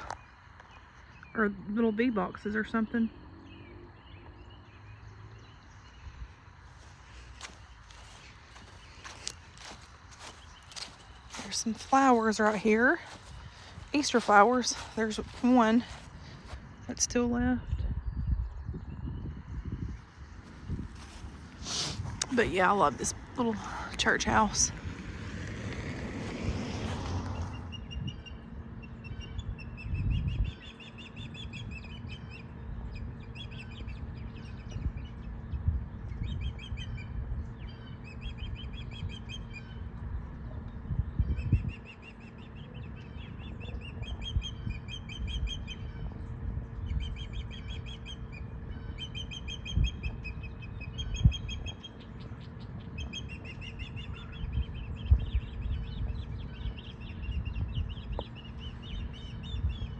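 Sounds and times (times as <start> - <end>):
songbirds trilling: 0.0 - 59.9
low rumble: 5.5 - 30.6.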